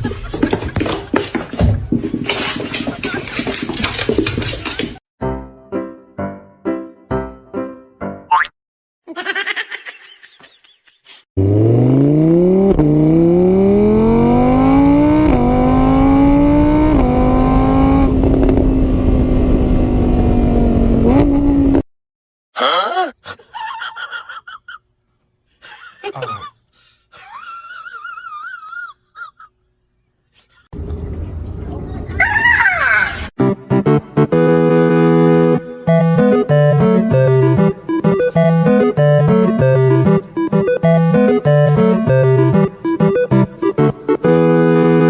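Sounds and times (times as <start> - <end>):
engine revving through gears: 11.4 - 21.8.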